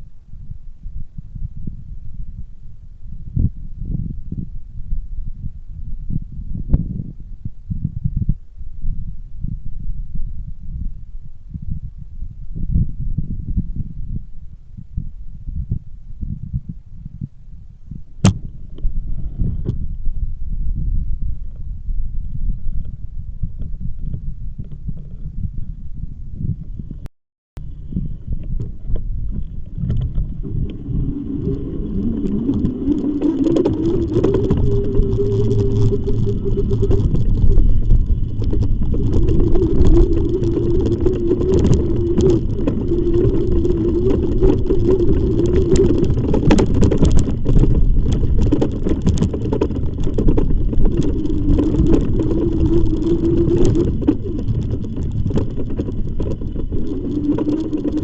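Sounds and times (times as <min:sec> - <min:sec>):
rumble of wind and tyres: 0:00.0 - 0:58.0
electric bike motor whining: 0:30.3 - 0:47.5.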